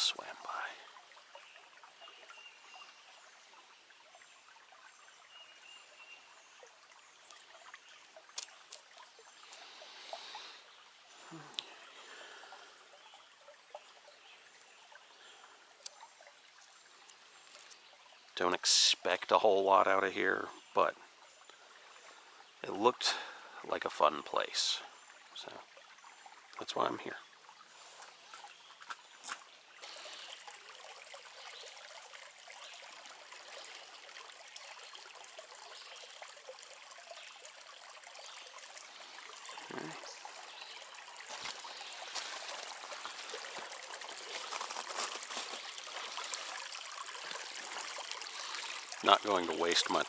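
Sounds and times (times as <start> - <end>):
faint creek trickling: 0.0 - 50.0.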